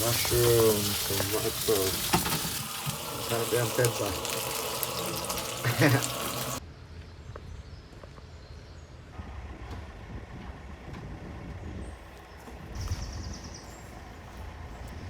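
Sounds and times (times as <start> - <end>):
water running from a tap: 0.0 - 6.6.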